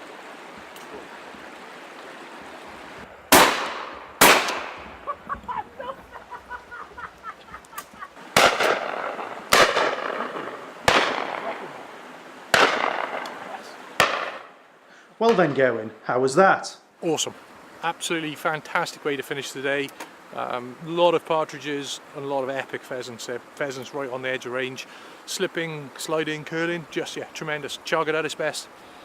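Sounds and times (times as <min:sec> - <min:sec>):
shotgun shots with echo: 0:03.3 - 0:04.9, 0:08.4 - 0:11.6, 0:12.5 - 0:13.4, 0:14.0 - 0:14.5.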